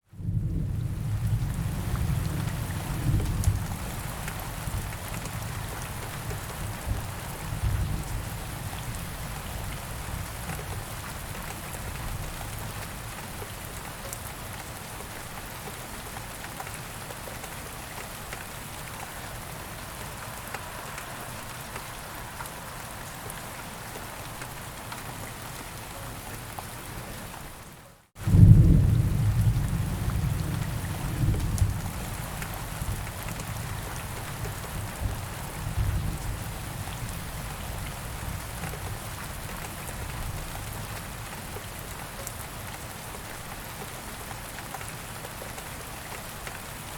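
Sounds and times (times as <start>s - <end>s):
rain falling in forest: 0.0s - 46.9s
deep thunder rumble: 28.2s - 33.0s.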